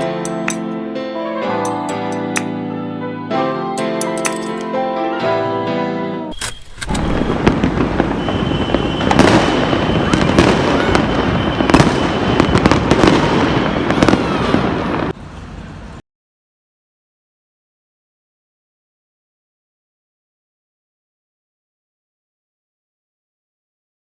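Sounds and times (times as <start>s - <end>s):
thin steady whistle: 6.3s - 14.5s
fireworks crackling and banging: 6.6s - 15.9s.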